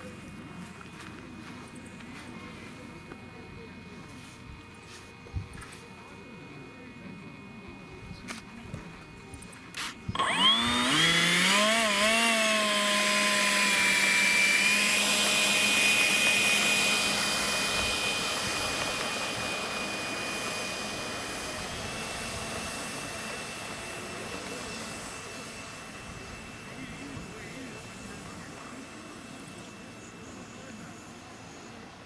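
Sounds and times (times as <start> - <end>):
electric motor whine: 9.8 - 32.0.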